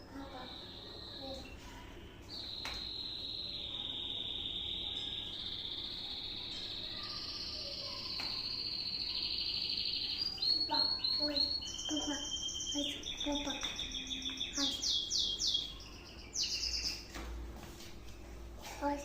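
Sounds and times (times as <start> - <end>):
songbird trilling and chirping: 0.0 - 17.2.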